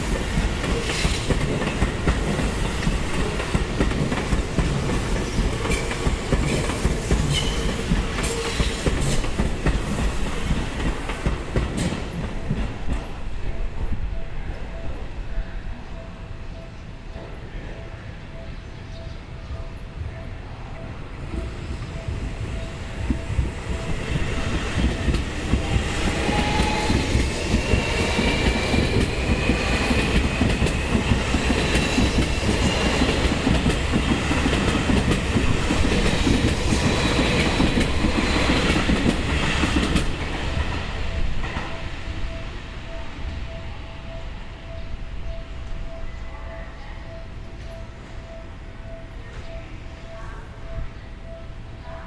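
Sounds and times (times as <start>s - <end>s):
railway crossing bell: 12.3s - 52.0s.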